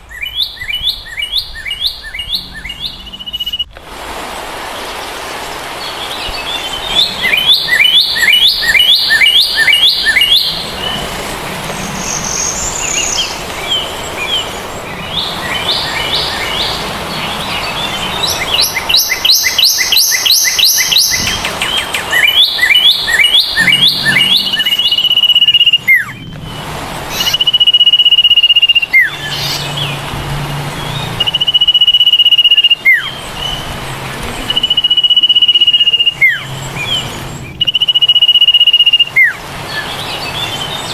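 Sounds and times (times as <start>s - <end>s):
bird chirping: 0.0s - 3.7s, 4.8s - 40.9s
bird whistling with downward slur: 0.1s - 3.7s, 6.7s - 11.0s, 17.6s - 29.8s, 30.9s - 33.6s, 34.5s - 40.9s.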